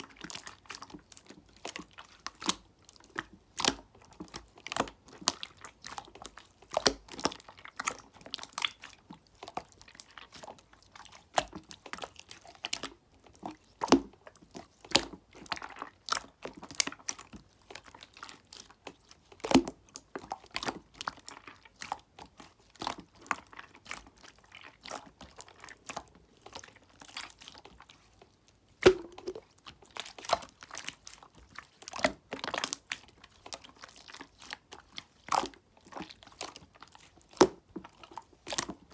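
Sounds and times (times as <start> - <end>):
slime squeezed by hand clicking: 28.8 - 29.5.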